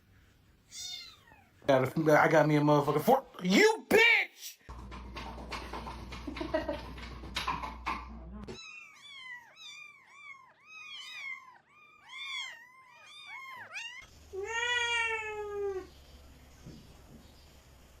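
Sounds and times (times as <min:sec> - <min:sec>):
cat meowing: 0:00.7 - 0:01.6, 0:08.5 - 0:15.9.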